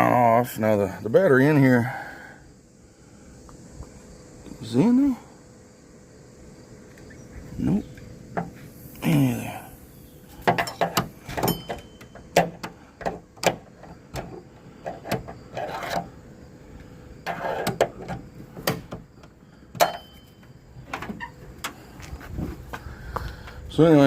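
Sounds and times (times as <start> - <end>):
sharp knocks and clunks: 8.3 - 8.6, 10.4 - 16.1, 17.2 - 21.8
scraping and rustling: 13.7 - 16.2.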